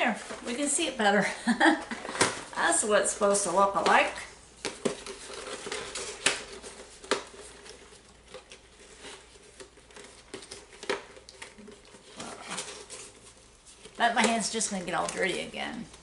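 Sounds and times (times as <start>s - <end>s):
packaging rustling: 4.5s - 16.0s.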